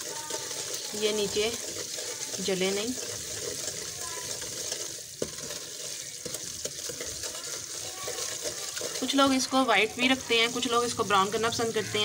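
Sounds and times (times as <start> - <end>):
semolina sizzling in oil: 0.0 - 12.0
spatula scraping a pan: 0.0 - 12.0
spatula knocking on pan: 1.5 - 9.5.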